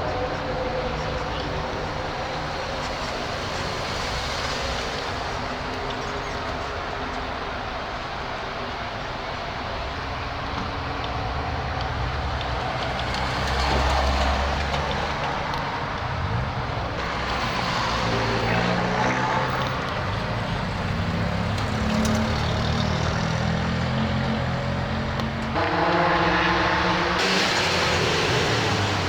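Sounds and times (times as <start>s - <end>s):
car engines rumbling: 0.0s - 29.0s
engine revving: 12.2s - 29.0s.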